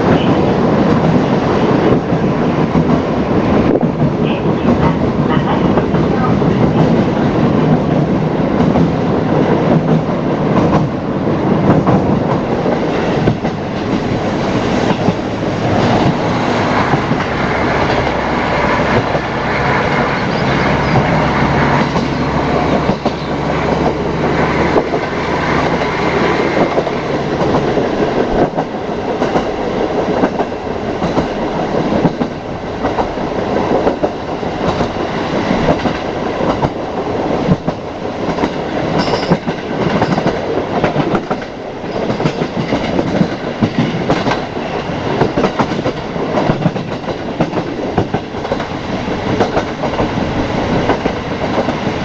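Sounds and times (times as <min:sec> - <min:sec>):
train rumbling: 0:00.0 - 0:52.0
train wheels clacking over joints: 0:11.6 - 0:36.8, 0:37.4 - 0:52.0.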